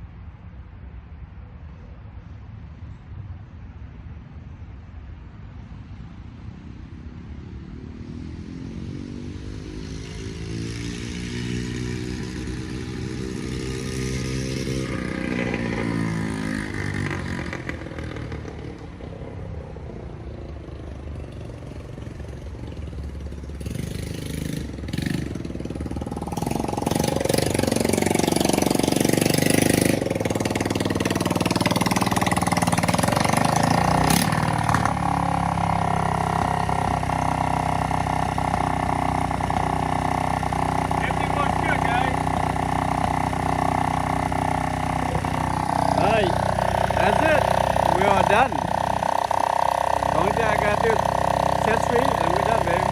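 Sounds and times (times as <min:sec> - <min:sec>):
small atv engine running: 0:08.1 - 0:52.9.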